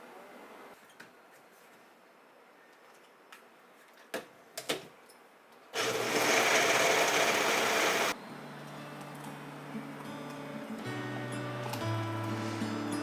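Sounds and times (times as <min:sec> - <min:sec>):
small electric motor whirring: 0:05.8 - 0:08.2.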